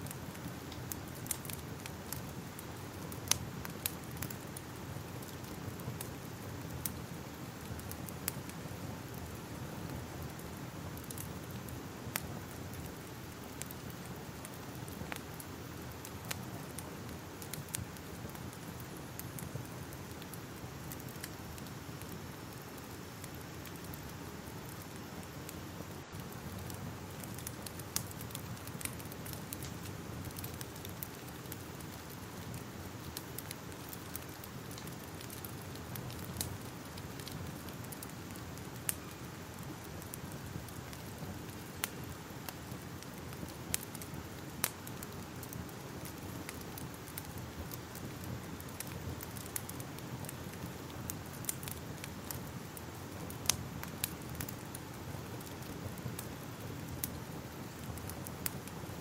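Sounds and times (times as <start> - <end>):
fire rumbling and hissing: 0.0 - 59.0
fire pops and snaps: 0.1 - 59.0.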